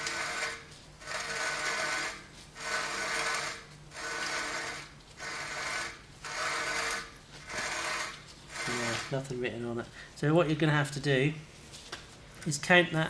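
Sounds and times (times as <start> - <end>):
rasping rub of turning axle: 0.0 - 9.2.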